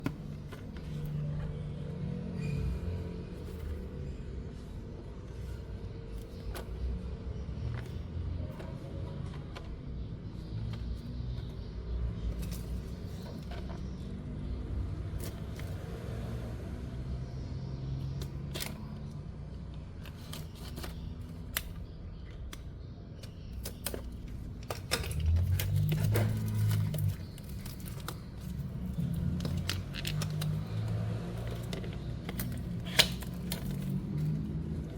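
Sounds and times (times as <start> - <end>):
packaging clicks and taps: 19.7 - 34.9.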